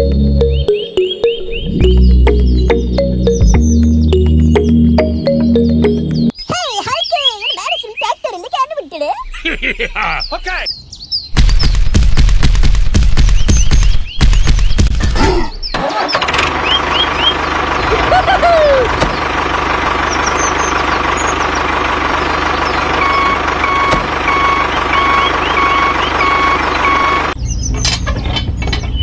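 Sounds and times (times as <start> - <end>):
reversing alarm beeping: 0.0 - 6.1, 23.0 - 27.4
tractor engine running: 0.0 - 6.3, 11.4 - 29.0.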